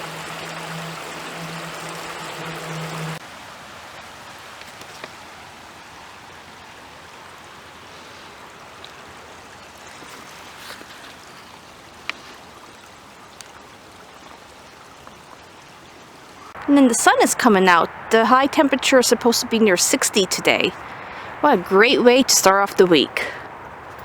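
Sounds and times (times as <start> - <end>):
waterfall splashing: 0.0 - 14.6.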